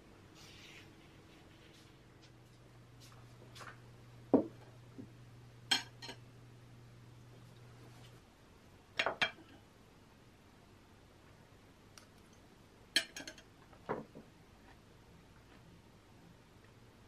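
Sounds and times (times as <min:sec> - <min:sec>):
tableware clinking and knocking: 0:05.7 - 0:06.2, 0:09.0 - 0:09.6, 0:13.0 - 0:13.5.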